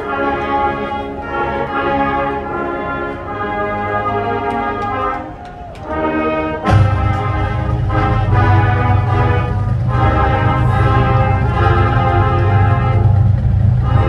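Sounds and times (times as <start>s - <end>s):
marching band playing: 0.0s - 14.0s
low bass: 6.7s - 14.0s.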